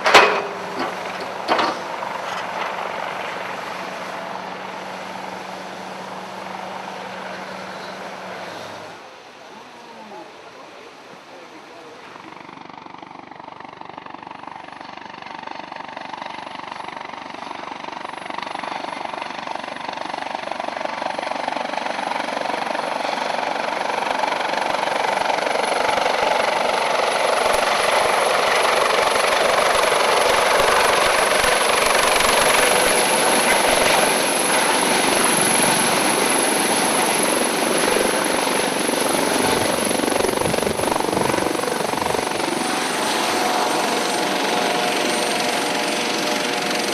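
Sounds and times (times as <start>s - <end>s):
helicopter rotor and engine: 0.0s - 9.1s, 11.4s - 46.9s
high steady whine: 28.7s - 46.9s.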